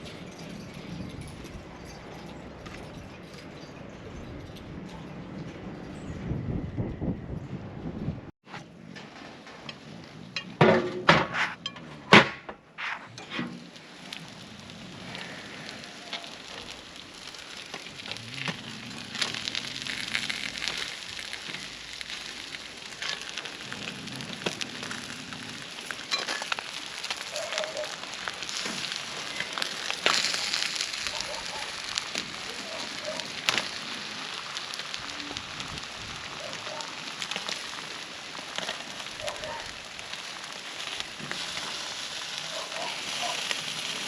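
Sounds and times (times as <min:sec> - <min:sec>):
fish sizzling over a fire: 0:13.6 - 0:44.0.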